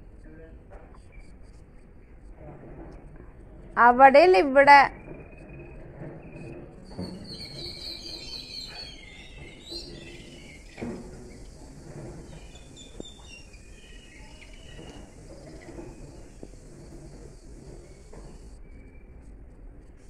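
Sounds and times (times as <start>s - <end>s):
low background noise: 0.0s - 20.0s
small birds chirping: 4.9s - 19.2s.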